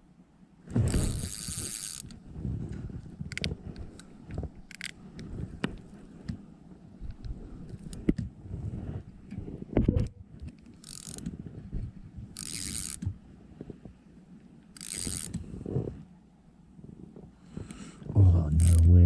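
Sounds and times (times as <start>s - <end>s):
fishing reel whirring: 0.8s - 2.2s, 10.8s - 11.3s, 12.4s - 13.1s, 14.7s - 15.4s, 18.6s - 18.8s.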